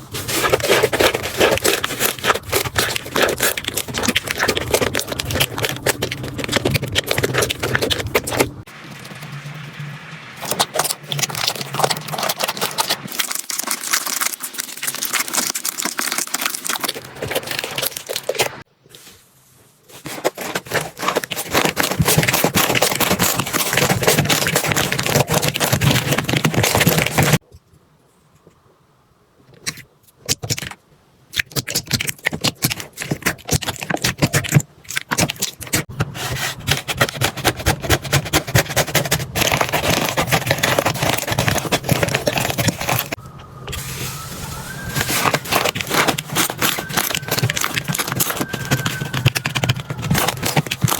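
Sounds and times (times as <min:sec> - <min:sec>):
slime crackling and popping: 0:00.4 - 0:09.4, 0:10.4 - 0:18.6.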